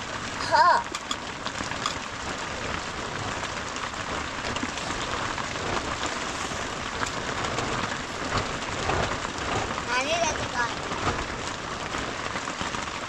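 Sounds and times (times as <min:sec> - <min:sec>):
faint scattered clicks: 0:00.8 - 0:02.1.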